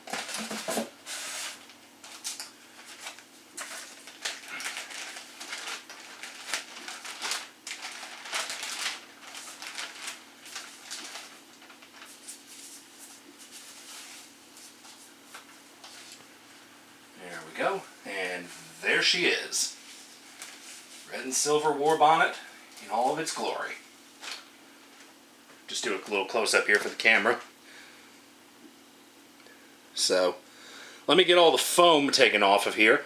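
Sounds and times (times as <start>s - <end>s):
packaging foam and plastic rustling: 0.0s - 16.4s, 17.3s - 25.2s.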